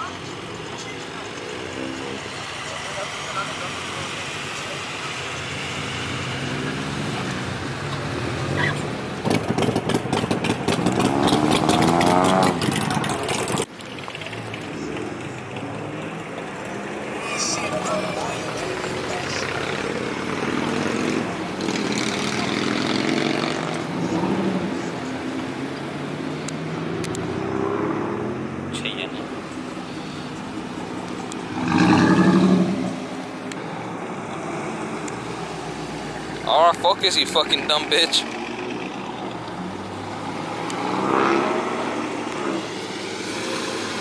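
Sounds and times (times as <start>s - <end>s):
car driving past: 29.7s - 44.0s.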